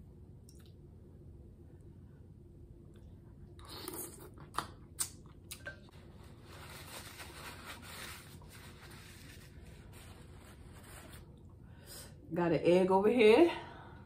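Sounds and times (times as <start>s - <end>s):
chewing mouth clicks and smacks: 3.6s - 5.8s
paper towel rustling: 5.9s - 11.3s.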